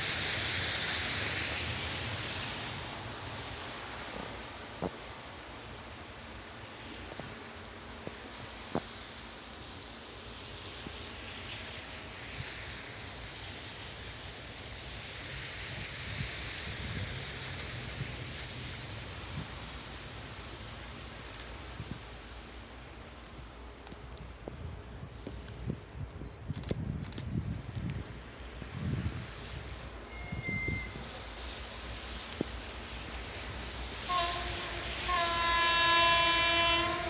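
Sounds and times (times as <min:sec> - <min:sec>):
distant freight train rumbling: 0:00.0 - 0:37.0
wind noise on microphone: 0:15.2 - 0:19.7, 0:24.2 - 0:37.0.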